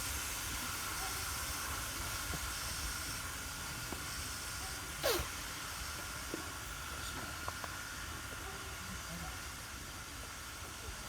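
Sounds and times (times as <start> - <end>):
steam locomotive hissing: 4.1 - 6.0
short falling squeak: 5.0 - 5.3.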